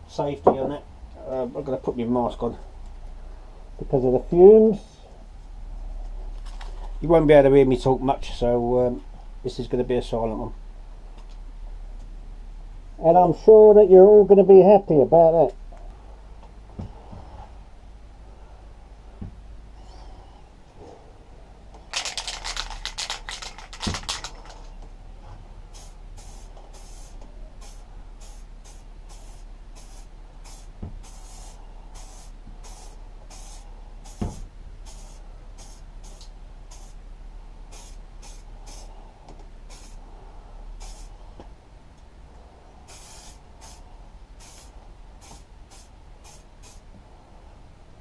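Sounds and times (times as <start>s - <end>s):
spray can hissing bursts: 21.9s - 24.5s, 25.7s - 37.0s, 37.7s - 38.9s, 39.7s - 40.0s, 40.8s - 41.1s, 42.9s - 43.8s, 44.4s - 46.9s
spray can rattling: 21.9s - 24.7s, 44.4s - 46.8s.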